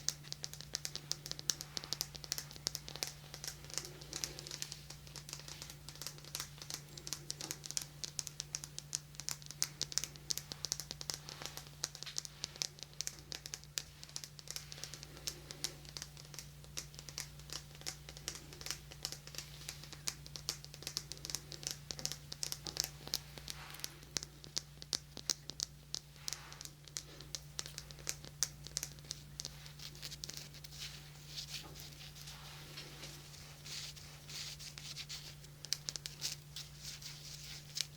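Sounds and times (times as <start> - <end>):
fingers tapping and scratching: 0.0 - 37.9
low electrical hum: 0.0 - 37.9.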